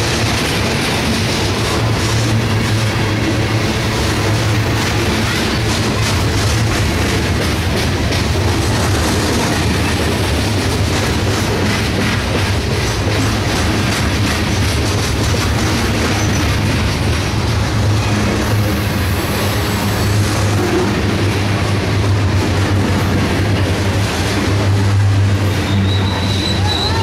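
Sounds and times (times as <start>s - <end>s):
wheels clicking over rail joints: 0.0s - 18.7s
freight train wheels rumbling: 0.0s - 27.0s.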